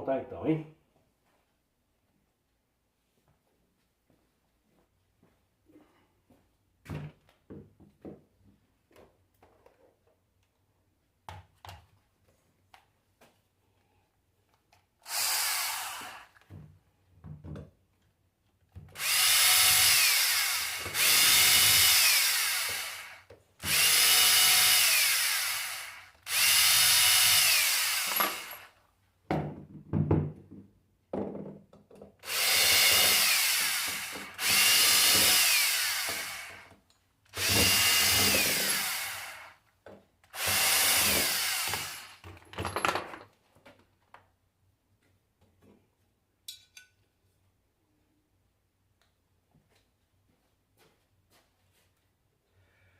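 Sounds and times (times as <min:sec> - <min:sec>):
power tool motor whining: 0:15.0 - 0:16.4, 0:19.0 - 0:28.7, 0:32.2 - 0:36.7, 0:37.4 - 0:39.6, 0:40.3 - 0:42.2.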